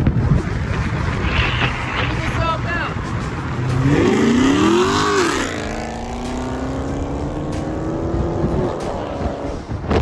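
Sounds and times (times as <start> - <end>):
car engine accelerating: 3.0 - 10.0.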